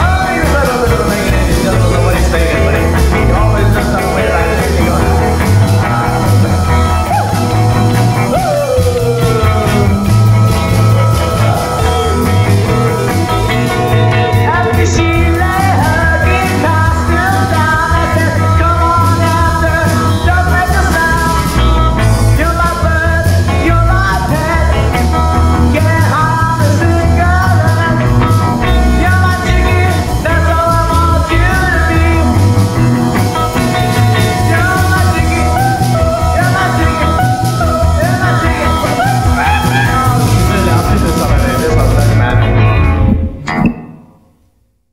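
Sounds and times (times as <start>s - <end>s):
drums on a steady beat: 0.0s - 42.8s
bending lead melody line: 0.0s - 44.2s
electric guitars: 0.0s - 44.2s
bass guitar: 0.0s - 44.7s.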